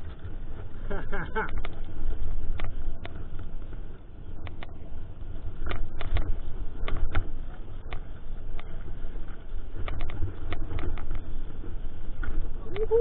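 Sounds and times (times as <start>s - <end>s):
mountain bike rumbling over trail: 0.0s - 13.0s
bike clicks and knocks: 5.5s - 12.5s.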